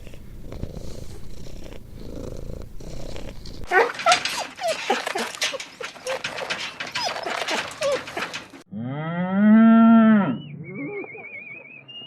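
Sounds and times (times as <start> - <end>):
cow mooing: 8.7 - 10.4.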